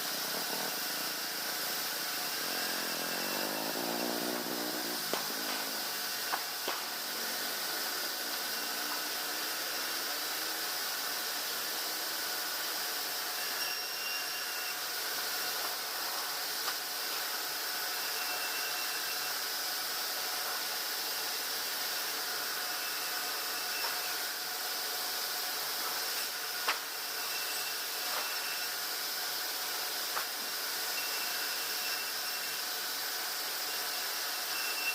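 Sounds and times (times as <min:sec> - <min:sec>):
sawmill machinery whooshing hiss: 0:00.0 - 0:13.6
thin whines: 0:00.0 - 0:16.4, 0:17.0 - 0:19.5, 0:21.8 - 0:24.8, 0:25.8 - 0:34.9.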